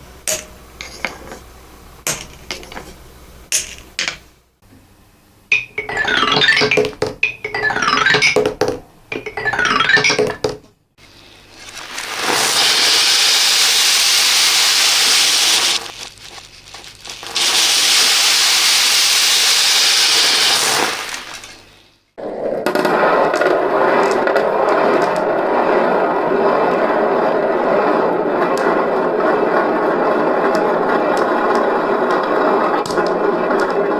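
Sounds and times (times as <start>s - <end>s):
beads clattering down xylophone track: 5.5s - 10.7s, 14.3s - 19.4s
small beads pouring: 11.1s - 21.8s.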